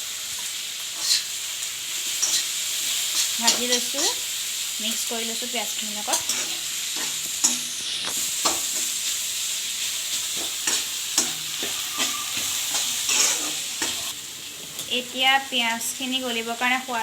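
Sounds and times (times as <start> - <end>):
onions sizzling in a pan: 0.0 - 17.0
utensil scraping and knocking pan: 10.4 - 14.1.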